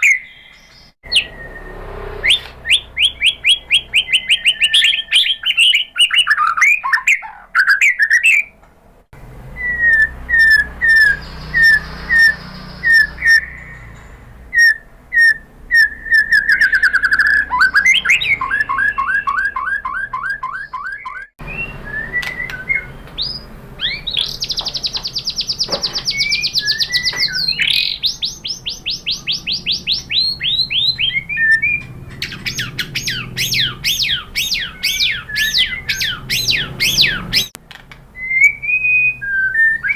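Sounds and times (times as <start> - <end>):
bird singing whistles and trills: 0.0 - 8.6, 9.5 - 37.6, 38.2 - 39.9.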